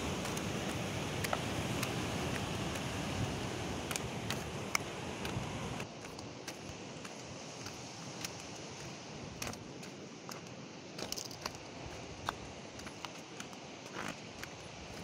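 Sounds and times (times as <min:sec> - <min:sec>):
footsteps on loose rock: 0:00.0 - 0:15.0
outdoor hiss: 0:00.0 - 0:15.0.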